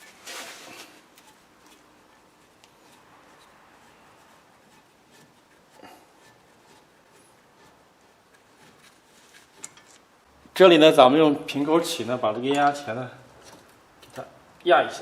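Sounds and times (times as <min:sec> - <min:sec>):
faint clicks and rubbing: 0:00.0 - 0:10.1
rustling scrape: 0:00.0 - 0:10.1.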